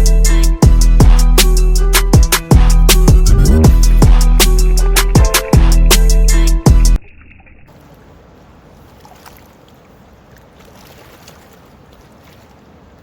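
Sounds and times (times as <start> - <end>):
river water flowing: 7.0 - 13.0
wind: 7.0 - 13.0.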